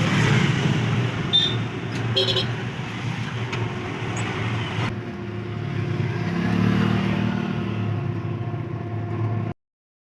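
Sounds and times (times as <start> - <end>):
vehicle engine passing: 5.4 - 8.2.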